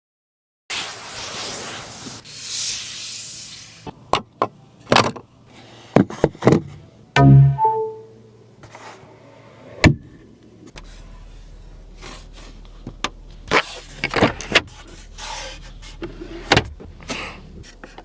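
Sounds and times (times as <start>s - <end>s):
two-tone electronic chime: 7.2s - 8.2s
low electric hum: 10.1s - 18.0s.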